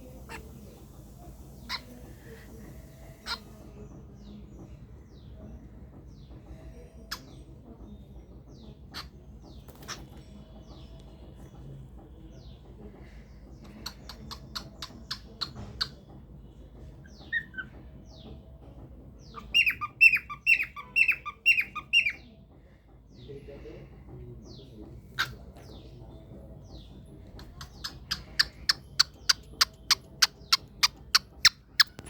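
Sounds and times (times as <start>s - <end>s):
cockatiel chirps: 1.6s - 2.0s, 19.3s - 22.2s.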